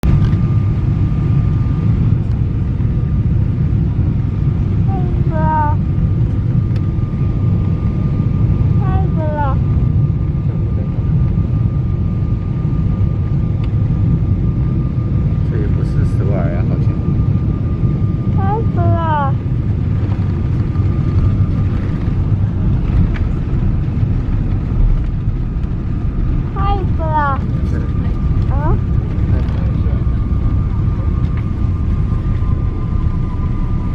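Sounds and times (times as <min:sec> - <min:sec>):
airliner cabin roar: 0:00.0 - 0:33.9
faint whine: 0:00.0 - 0:33.9
jet engines and airflow rumble: 0:00.0 - 0:33.9.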